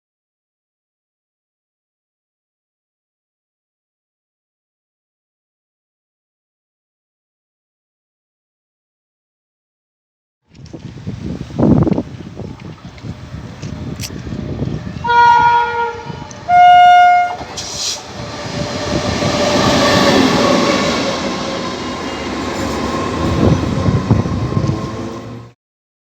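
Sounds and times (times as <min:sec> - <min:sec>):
train horn blasts: 0:15.0 - 0:21.1
train wheels clattering past: 0:15.8 - 0:25.6.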